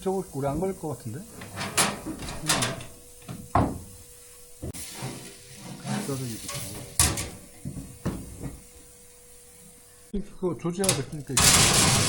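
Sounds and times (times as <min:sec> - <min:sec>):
steady sizzling hiss: 0:00.0 - 0:12.0
sharp knocks and clatters: 0:01.4 - 0:04.0, 0:06.9 - 0:08.7.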